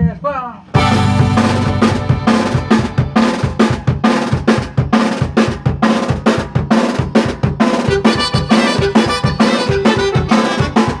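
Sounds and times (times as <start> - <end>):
drum kit beating: 0.0 - 11.0
band playing: 0.7 - 4.6, 7.8 - 11.0.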